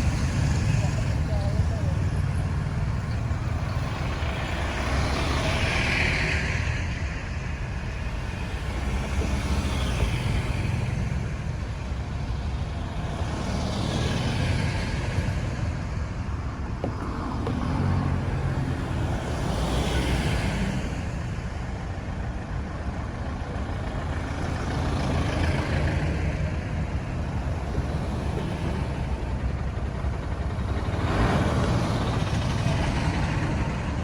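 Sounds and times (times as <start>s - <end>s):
low engine rumble of traffic: 0.0s - 34.0s
vehicles passing: 0.0s - 34.0s.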